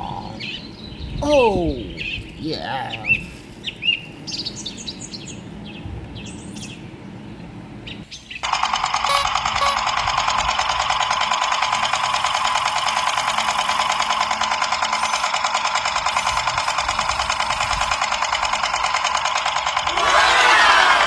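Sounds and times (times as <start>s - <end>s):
small electric motor chattering: 8.4s - 21.0s.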